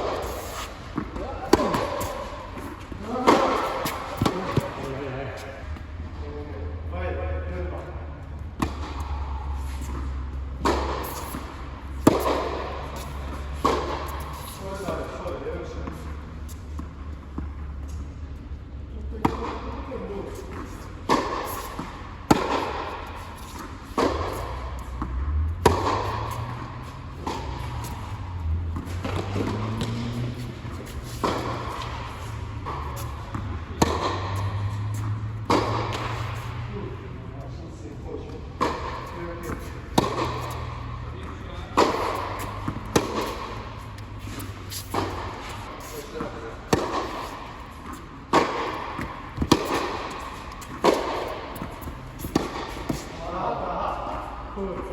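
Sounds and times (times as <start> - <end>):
ball bounces: 0.0 - 5.0, 9.8 - 14.6, 20.6 - 36.6, 38.5 - 53.1
racquet striking tennis ball: 0.0 - 5.9, 8.5 - 15.2, 19.2 - 19.8, 20.4 - 37.4, 38.2 - 53.4.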